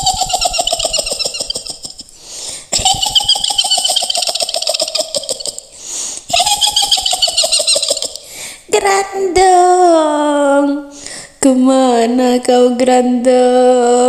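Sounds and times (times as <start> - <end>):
shrill witch's cackle: 0.0 - 8.4.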